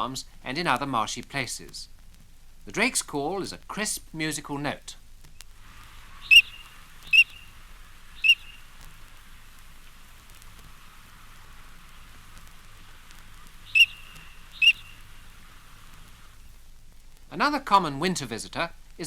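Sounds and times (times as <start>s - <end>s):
faint steady hiss: 0.0s - 19.0s
duck whistling calls: 6.0s - 10.1s, 10.7s - 16.5s.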